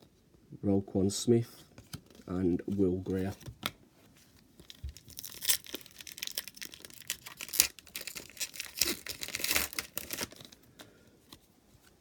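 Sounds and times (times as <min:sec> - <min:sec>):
card pack wrapper crinkling: 0:04.5 - 0:10.9.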